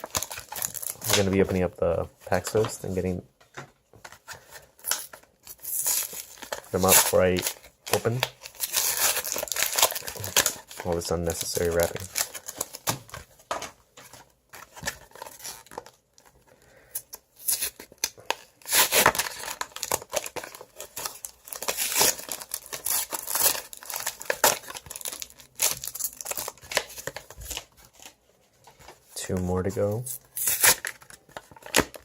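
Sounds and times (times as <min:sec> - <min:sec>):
plastic packaging tearing and crinkling: 0:00.0 - 0:01.5, 0:04.8 - 0:13.6, 0:14.6 - 0:16.3, 0:17.3 - 0:28.1, 0:29.9 - 0:32.0.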